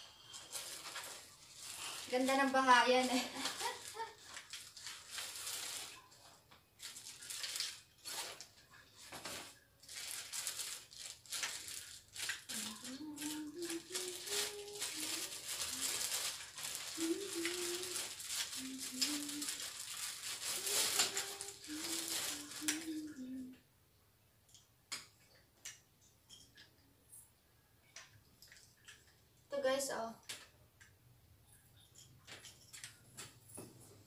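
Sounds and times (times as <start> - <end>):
plastic packaging crinkling: 0.1 - 23.5.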